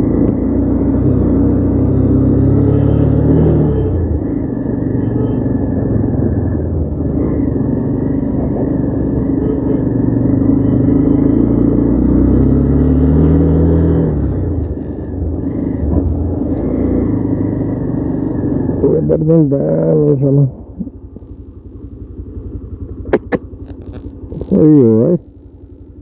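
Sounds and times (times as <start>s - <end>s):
motorcycle engine under load: 20.7s - 26.0s.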